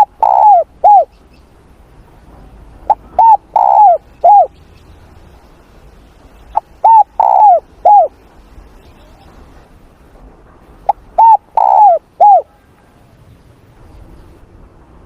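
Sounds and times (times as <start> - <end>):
dove cooing: 0.0 - 1.2, 2.8 - 4.5, 6.5 - 8.2, 10.9 - 12.7.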